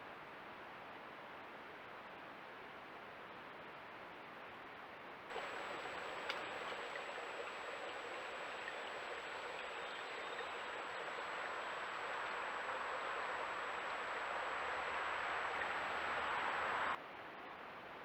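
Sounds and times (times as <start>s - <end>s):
river water rushing: 5.3s - 17.0s.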